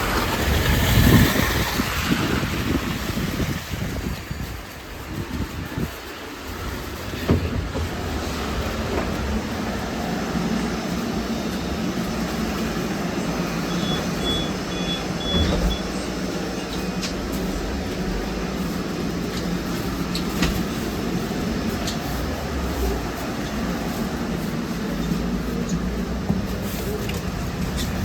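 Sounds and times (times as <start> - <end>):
trolleybus running hum: 0.0 - 28.0
high electronic beeps: 13.7 - 15.9.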